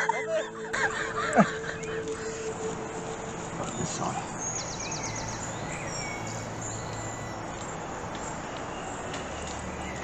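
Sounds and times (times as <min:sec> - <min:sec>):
small birds singing: 0:00.6 - 0:10.0.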